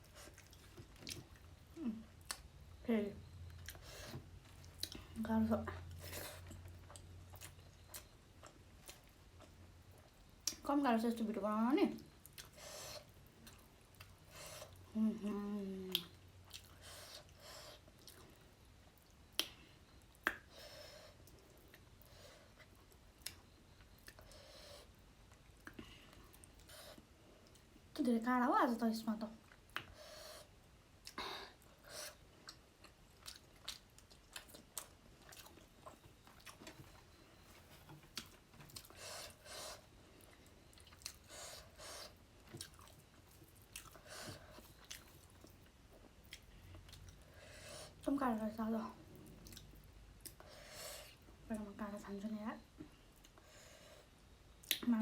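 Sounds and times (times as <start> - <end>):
person chewing: 0.0 - 1.5, 3.5 - 5.1, 5.9 - 10.6, 12.2 - 14.9, 15.9 - 19.6, 31.0 - 47.3, 49.2 - 51.2
wet mouth clicks and smacks: 19.3 - 20.5.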